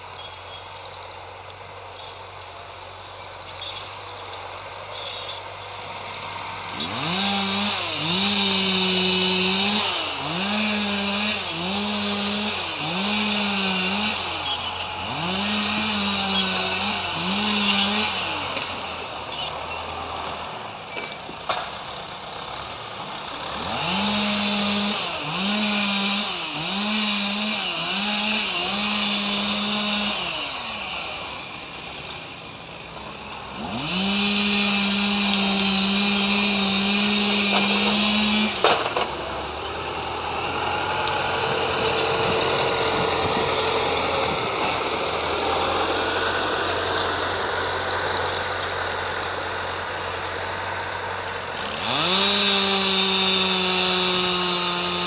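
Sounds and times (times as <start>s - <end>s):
chainsaw revving in bursts: 4.9s - 55.0s.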